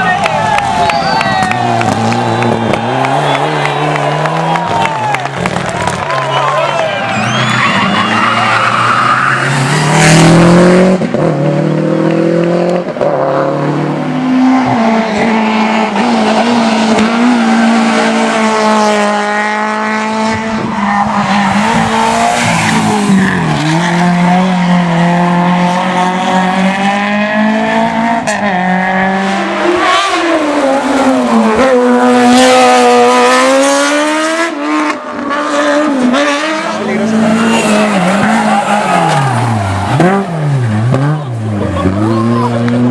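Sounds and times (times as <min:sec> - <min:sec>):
rally car engine revving: 0:00.7 - 0:42.9.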